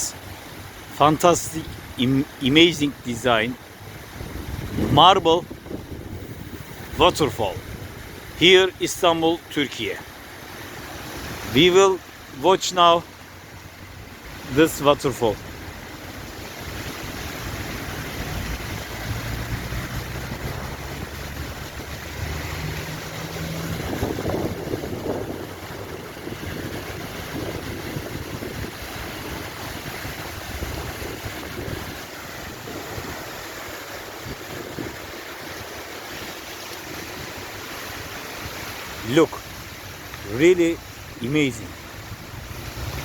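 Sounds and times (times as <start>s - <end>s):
fountain water splashing: 0.0s - 43.0s
wind buffeting microphone: 3.7s - 8.4s, 15.4s - 40.0s.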